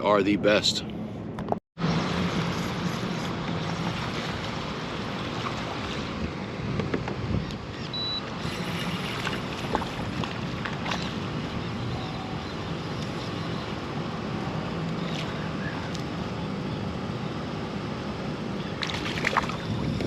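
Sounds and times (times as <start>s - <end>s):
wind noise on microphone: 1.2s - 12.4s, 19.0s - 20.0s
water moving against kayak: 3.2s - 6.4s, 8.3s - 11.8s.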